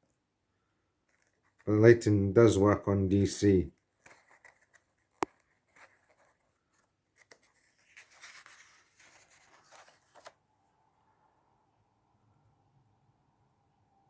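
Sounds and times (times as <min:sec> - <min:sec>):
paper rustling: 0:03.9 - 0:10.4.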